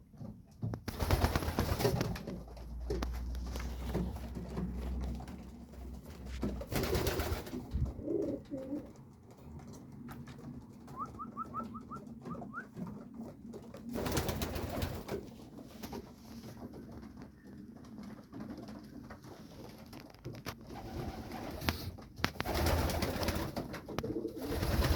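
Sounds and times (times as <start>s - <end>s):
rustling noise: 0.0s - 24.9s
pigeons cooing: 2.1s - 15.1s, 20.7s - 24.9s.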